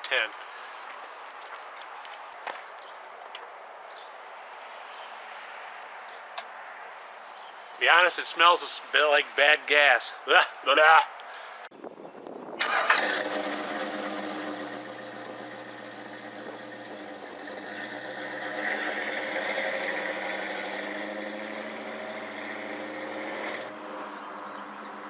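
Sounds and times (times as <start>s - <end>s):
car engine starting and running: 12.6s - 24.0s.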